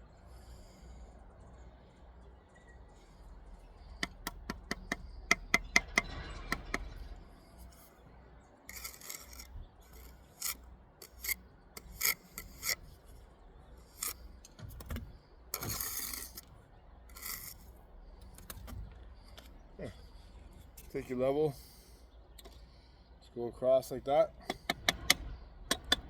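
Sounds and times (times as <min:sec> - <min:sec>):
trowel clicking on brick: 0:04.0 - 0:07.0, 0:08.7 - 0:12.9, 0:13.9 - 0:14.2, 0:15.6 - 0:16.5, 0:17.1 - 0:17.7
trowel scraping mortar: 0:04.0 - 0:08.0, 0:08.7 - 0:13.2, 0:13.8 - 0:14.3, 0:15.6 - 0:16.5, 0:17.1 - 0:17.8.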